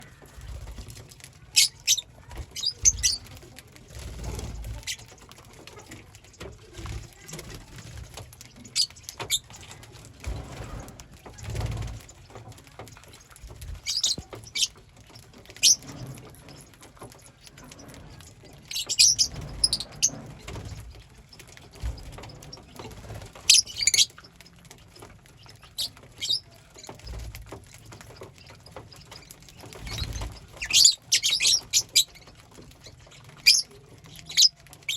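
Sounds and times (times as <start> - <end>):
rustling: 0.0 - 34.9
lovebirds chirping: 1.4 - 3.4, 11.9 - 27.2, 27.8 - 34.9.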